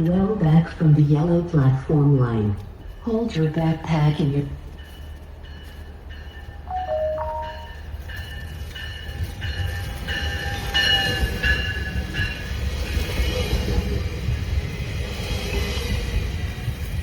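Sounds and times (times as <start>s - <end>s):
train low rumble: 0.0s - 17.0s
bell ringing steadily: 4.8s - 12.4s.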